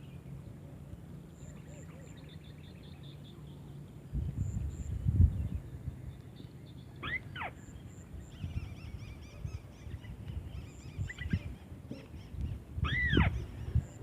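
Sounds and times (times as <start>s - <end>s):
low outdoor rumble: 0.0s - 14.0s
bird calls sweeping up and down: 7.0s - 14.0s.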